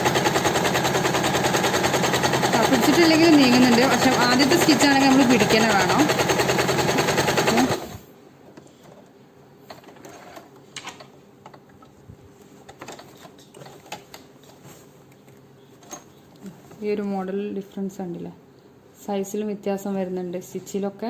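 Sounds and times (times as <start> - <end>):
sewing machine running fast: 0.0 - 8.0.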